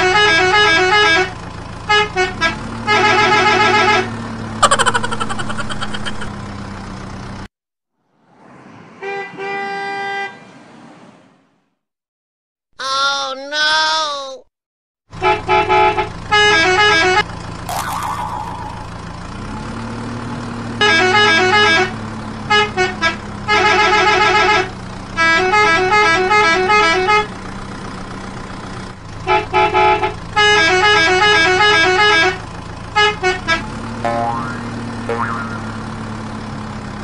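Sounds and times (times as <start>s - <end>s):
musical vehicle horn: 0.0s - 4.2s, 15.2s - 17.2s, 20.8s - 27.3s, 29.2s - 36.1s
engine hum: 0.0s - 7.5s, 15.1s - 37.0s
brief whoosh: 8.1s - 9.4s.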